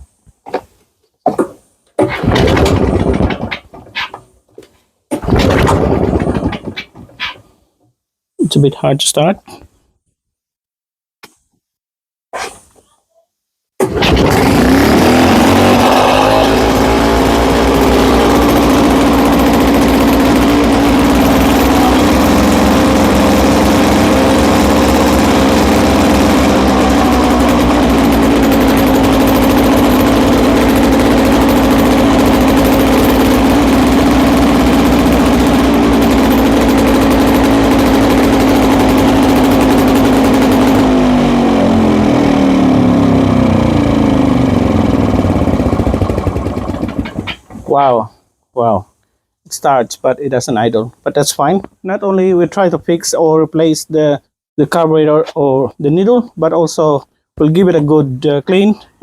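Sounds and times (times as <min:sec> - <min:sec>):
lawnmower engine running fast: 0:02.3 - 0:03.4, 0:05.3 - 0:06.6, 0:13.8 - 0:47.6.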